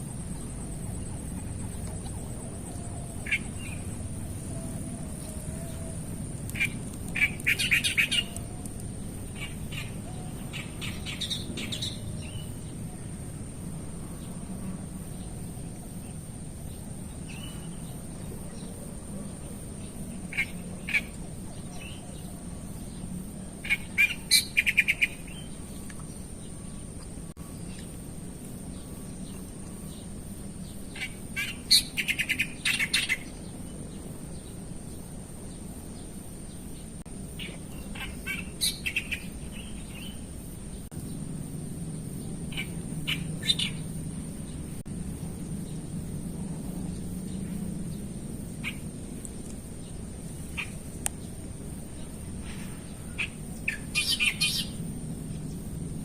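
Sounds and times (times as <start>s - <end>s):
birds chirping: 0.0s - 13.2s, 15.0s - 41.3s, 41.9s - 56.0s
steady high-pitched whine: 0.0s - 56.0s
low hum: 33.2s - 56.0s.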